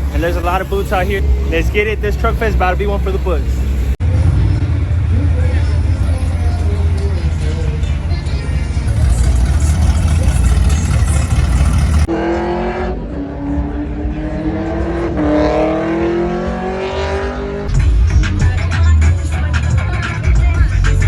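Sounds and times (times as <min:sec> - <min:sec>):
vehicle engine accelerating: 0:03.5 - 0:17.6
heavy bass sound: 0:06.0 - 0:12.1.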